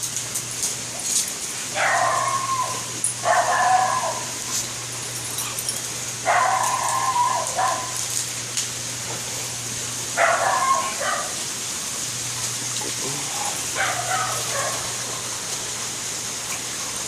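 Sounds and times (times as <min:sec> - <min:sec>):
dog whining: 0:01.8 - 0:04.4, 0:06.3 - 0:08.0.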